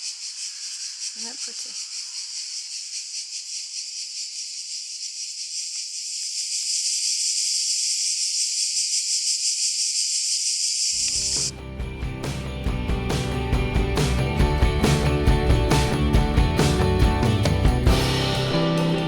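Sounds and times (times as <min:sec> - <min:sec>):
cicadas buzzing: 0:00.0 - 0:11.6
music: 0:11.3 - 0:19.0.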